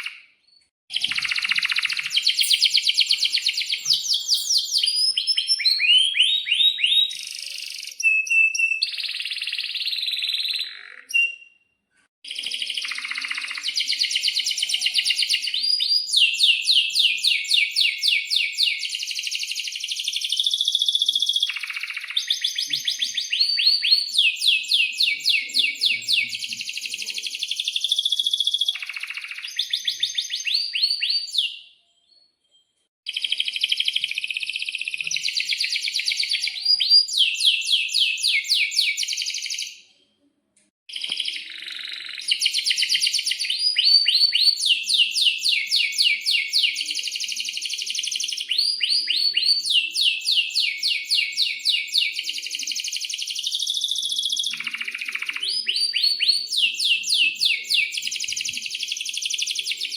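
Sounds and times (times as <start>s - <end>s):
canary singing trills: 0.0s - 32.4s.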